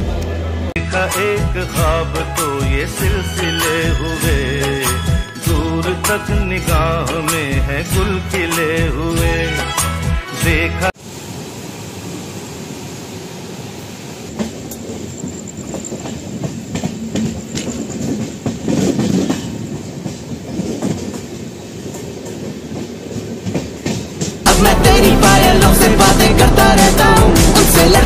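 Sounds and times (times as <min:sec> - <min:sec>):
train wheels rumbling on track: 0:11.4 - 0:26.0
wheels clacking over rail joints: 0:14.2 - 0:24.5.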